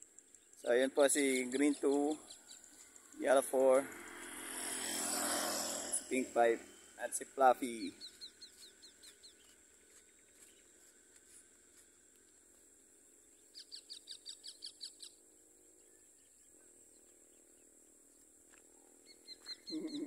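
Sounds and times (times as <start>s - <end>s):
faint shrill bird chirps: 13.3s - 15.2s, 19.0s - 20.0s.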